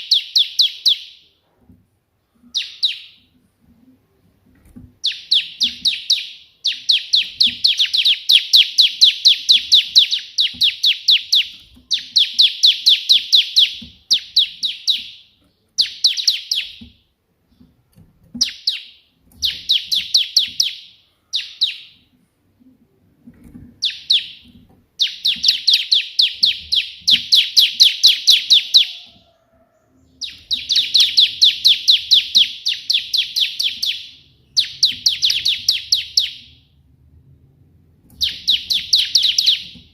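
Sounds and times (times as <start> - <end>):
bird rapid high chirps: 0.0 - 1.3, 2.4 - 3.3, 5.0 - 16.9, 18.4 - 22.1, 23.8 - 29.2, 30.0 - 36.7, 38.2 - 39.9.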